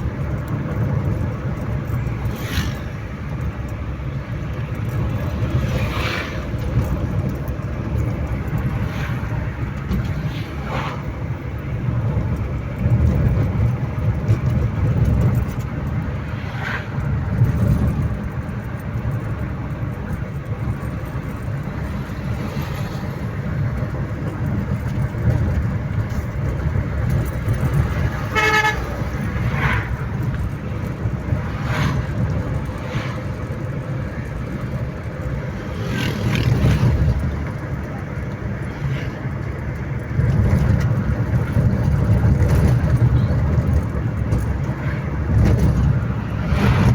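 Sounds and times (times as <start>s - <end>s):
vehicle horn toot: 28.2s - 29.1s.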